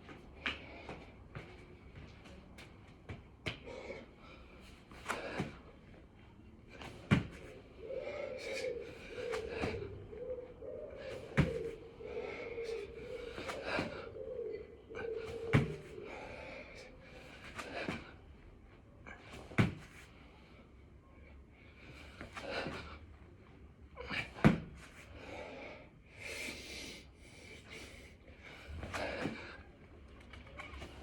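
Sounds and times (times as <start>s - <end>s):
heavy breathing: 3.5s - 6.0s, 6.8s - 18.2s, 25.0s - 29.8s.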